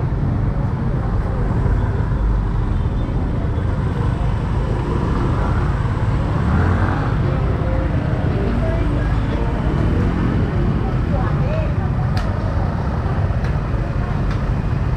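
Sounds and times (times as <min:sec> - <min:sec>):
motorcycle riding on road: 0:00.1 - 0:14.9.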